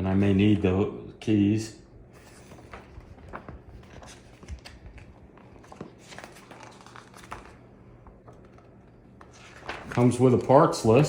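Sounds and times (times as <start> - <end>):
paper and packaging rustling: 2.2 - 11.0.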